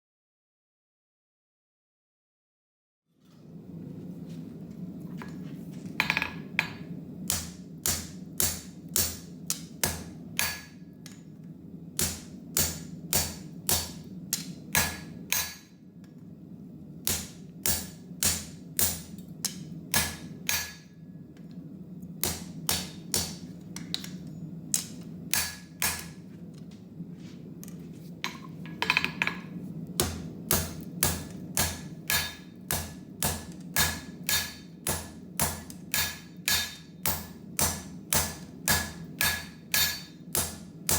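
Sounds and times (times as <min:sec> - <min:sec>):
steady low hum: 0:03.3 - 0:40.9
hammer striking hot steel: 0:06.0 - 0:11.3, 0:12.0 - 0:15.8, 0:17.0 - 0:21.0, 0:22.2 - 0:26.2, 0:28.2 - 0:40.9.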